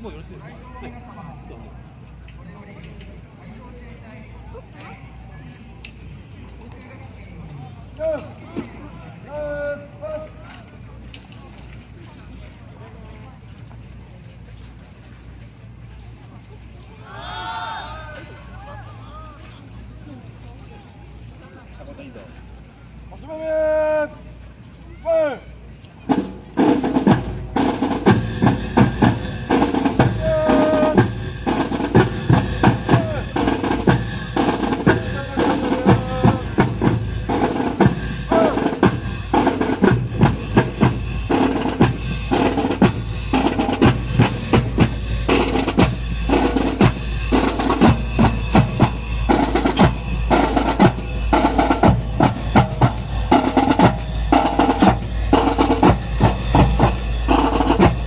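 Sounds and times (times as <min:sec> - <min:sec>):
snare drum rolls: 0:26.1 - 0:58.0
bass drum beats: 0:27.0 - 0:58.0.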